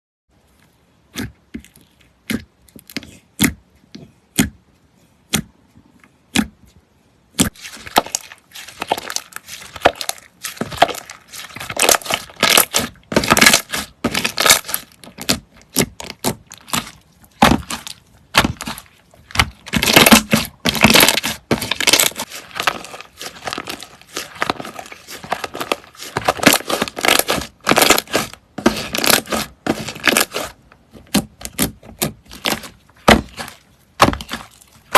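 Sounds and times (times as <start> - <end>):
slime crackling and popping: 7.4 - 34.9.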